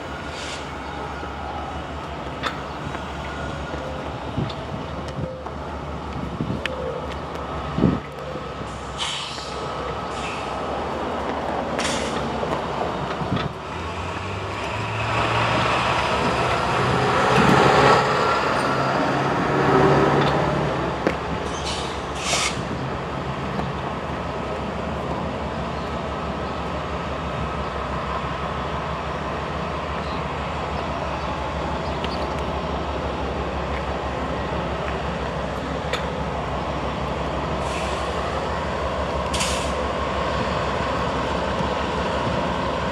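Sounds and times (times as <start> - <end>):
diesel locomotive engines: 0.0 - 42.9
freight cars rumbling past: 0.0 - 42.9
high hisses or squeals: 8.7 - 10.6, 21.5 - 22.6.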